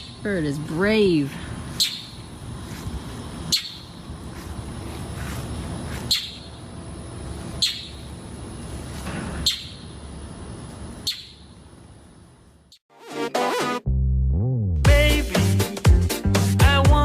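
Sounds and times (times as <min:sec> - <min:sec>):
bird chirping: 0:01.7 - 0:04.5, 0:05.2 - 0:06.7, 0:07.4 - 0:08.2, 0:09.4 - 0:10.1, 0:11.0 - 0:11.6.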